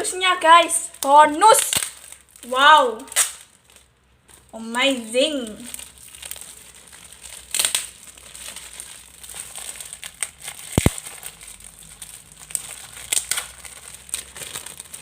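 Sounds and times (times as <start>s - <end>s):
packaging crinkling: 0.6s - 15.0s.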